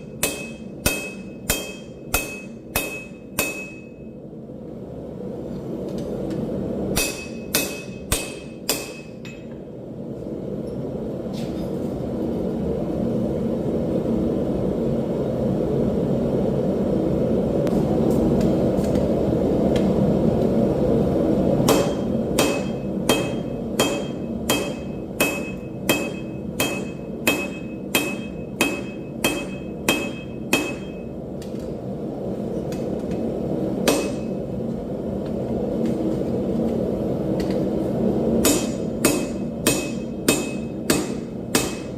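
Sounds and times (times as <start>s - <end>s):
hammer striking steel on anvil: 0.0s - 4.1s, 6.9s - 9.6s, 21.6s - 31.1s, 33.8s - 34.4s, 38.4s - 41.9s.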